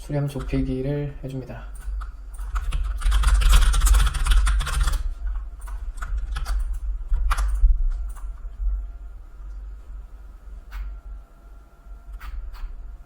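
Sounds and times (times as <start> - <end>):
typing on computer keyboard: 1.8 - 8.3.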